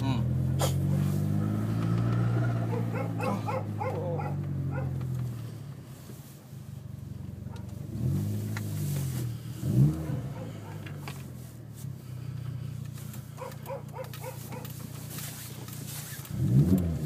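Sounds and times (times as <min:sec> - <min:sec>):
car engine droning from cabin: 0:00.0 - 0:17.0.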